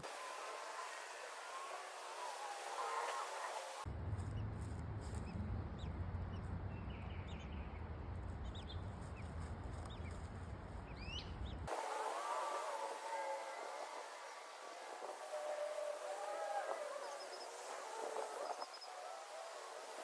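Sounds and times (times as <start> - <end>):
birds chirping: 10.8 - 20.0.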